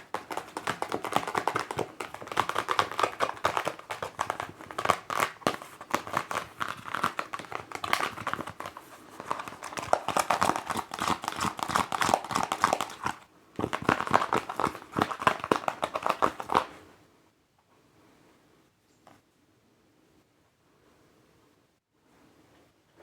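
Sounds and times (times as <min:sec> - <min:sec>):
fingers tapping on a mask: 0:00.0 - 0:16.7.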